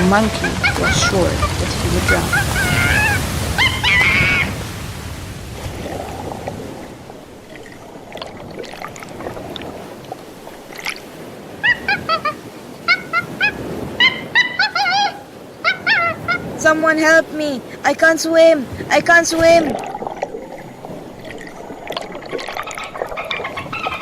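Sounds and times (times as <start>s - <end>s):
sea waves: 0.0s - 24.0s
high squawking animal calls: 0.1s - 4.6s, 11.6s - 16.6s, 22.7s - 24.0s.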